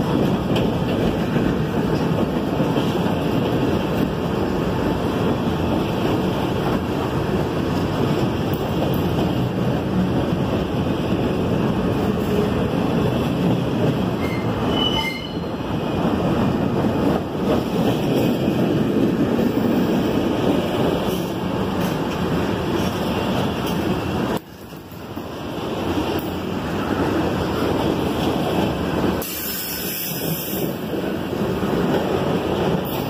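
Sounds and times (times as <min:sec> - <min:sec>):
train wheels rumbling on rail: 0:00.0 - 0:33.0
high wheel squeals: 0:14.2 - 0:15.6.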